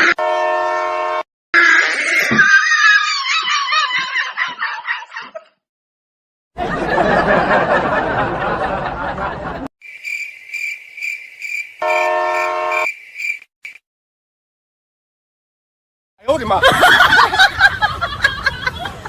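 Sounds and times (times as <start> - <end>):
train horn blast: 0.0 - 1.2, 11.8 - 12.9
pulsing insect-like chirp: 9.8 - 13.8.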